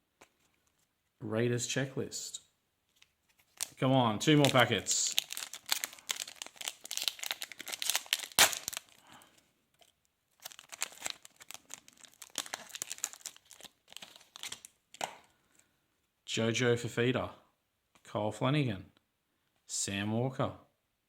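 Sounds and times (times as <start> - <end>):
wrapper crinkling: 2.9 - 15.1
wrapper ripping: 3.4 - 9.2, 9.8 - 15.1.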